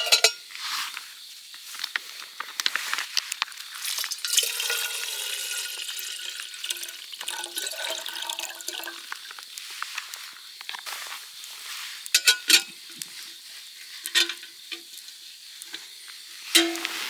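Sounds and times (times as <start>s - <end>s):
liquid pouring into container: 3.8s - 9.4s.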